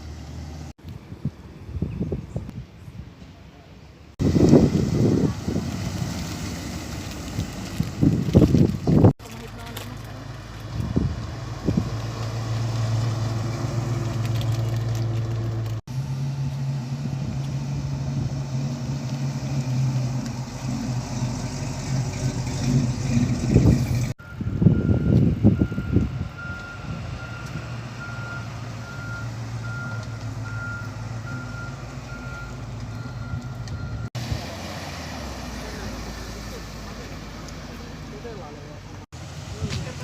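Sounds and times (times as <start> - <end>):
car engine rumbling: 3.1 - 40.0
high reversing beep: 24.2 - 34.1.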